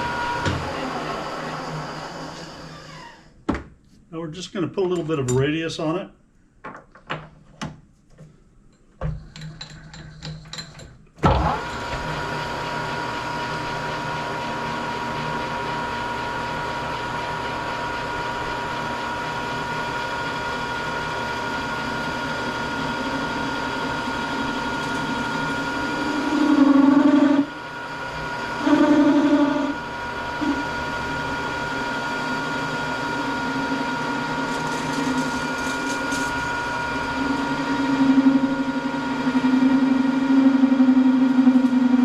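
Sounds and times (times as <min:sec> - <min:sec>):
lathe motor whining: 0:00.0 - 0:03.3, 0:11.3 - 0:42.0
cutting tool on steel: 0:34.4 - 0:36.9.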